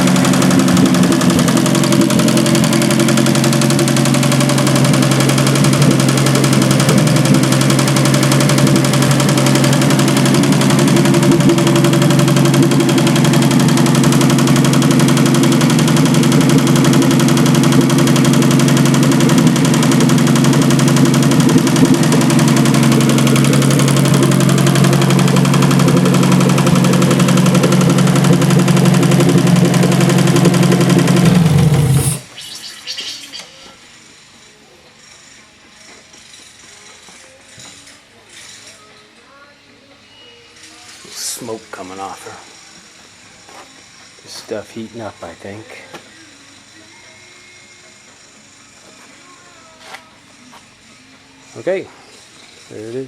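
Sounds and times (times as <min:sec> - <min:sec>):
six-cylinder engine running: 0:00.0 - 0:33.9.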